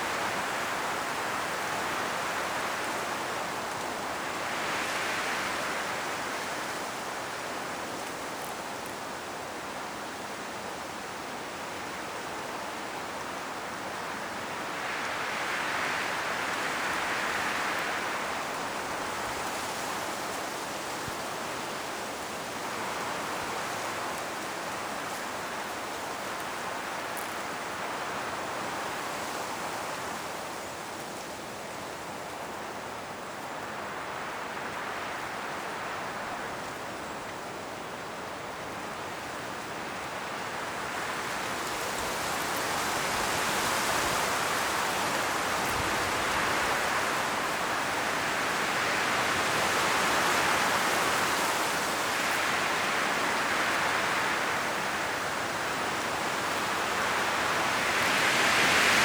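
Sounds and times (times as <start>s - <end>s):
wind rustling dry leaves: 0.0s - 59.0s.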